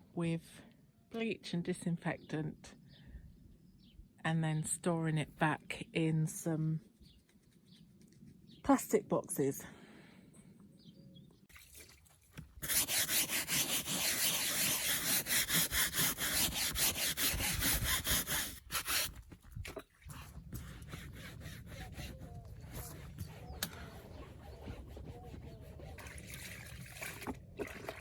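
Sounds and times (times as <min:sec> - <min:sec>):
scrubbing a surface: 0:12.6 - 0:27.2.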